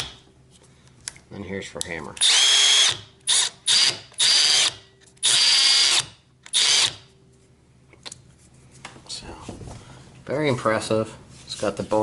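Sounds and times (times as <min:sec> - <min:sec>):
hammer drill running: 0:02.2 - 0:07.0.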